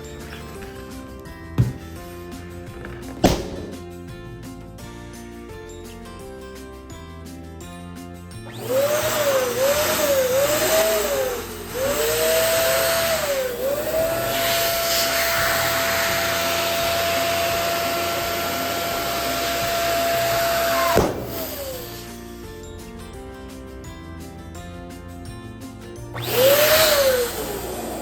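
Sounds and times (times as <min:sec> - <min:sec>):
electric balloon pump whining: 0:00.0 - 0:04.2, 0:08.4 - 0:22.5, 0:26.1 - 0:28.0
balloon popping: 0:01.6 - 0:02.1, 0:02.7 - 0:04.2, 0:20.6 - 0:22.0.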